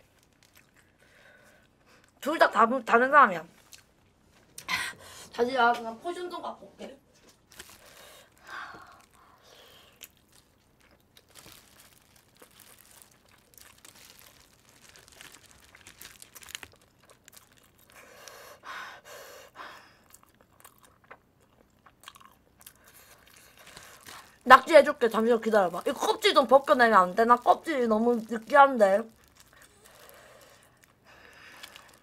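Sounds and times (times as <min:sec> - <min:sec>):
foil crinkling: 0:00.0 - 0:00.8, 0:07.4 - 0:18.4, 0:22.8 - 0:32.0
chewing and biting chicken: 0:20.0 - 0:24.3.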